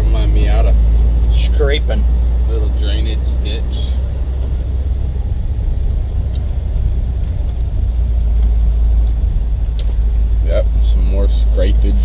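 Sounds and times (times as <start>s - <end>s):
car engine rumble: 0.0s - 12.0s
road noise inside car: 0.0s - 12.0s.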